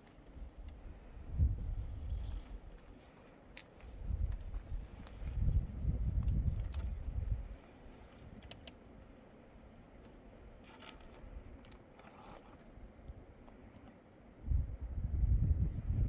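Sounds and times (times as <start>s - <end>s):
wind buffeting microphone: 0.4s - 2.7s, 4.0s - 7.6s, 14.4s - 16.0s
faint clicks: 8.0s - 8.8s.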